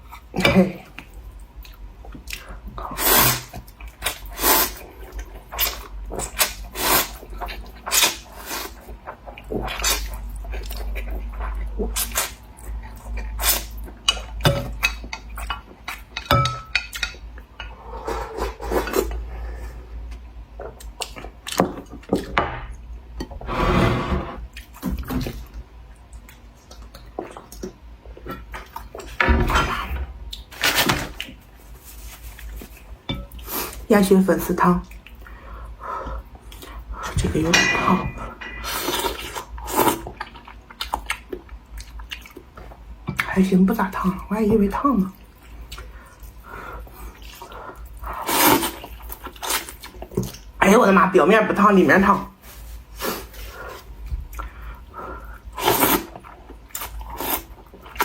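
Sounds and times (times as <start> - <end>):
chewing and slurping: 0.1 - 16.1, 45.1 - 50.5, 52.4 - 58.0.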